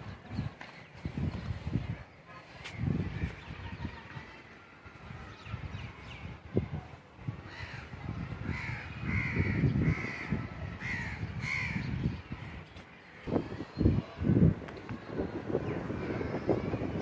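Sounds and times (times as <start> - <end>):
crow cawing: 8.5 - 11.9.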